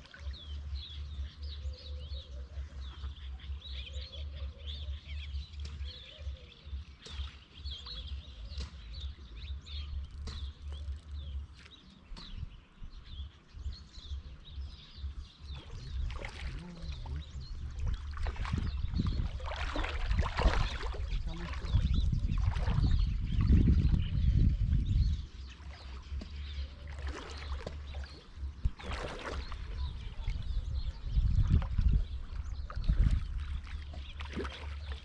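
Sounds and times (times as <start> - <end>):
small birds chirping: 0.0 - 35.0
wind on microphone: 12.2 - 35.0.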